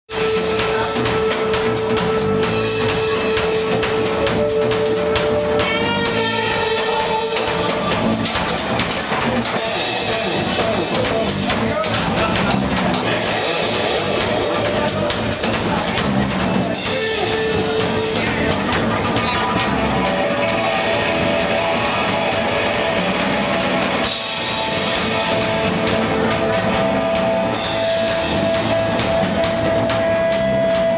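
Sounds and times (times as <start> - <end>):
rock band playing live: 0.1 - 30.9
long held note: 0.2 - 7.8.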